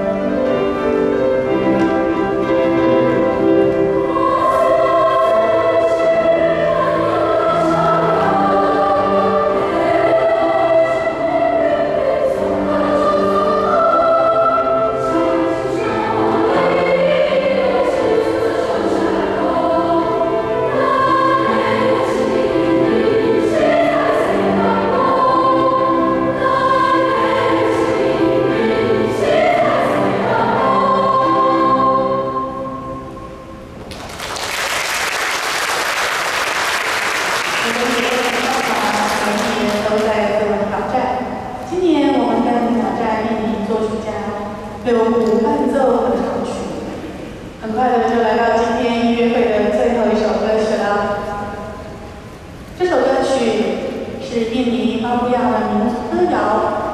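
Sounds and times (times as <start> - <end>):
choir singing: 0.0 - 44.8
applause: 33.9 - 40.1.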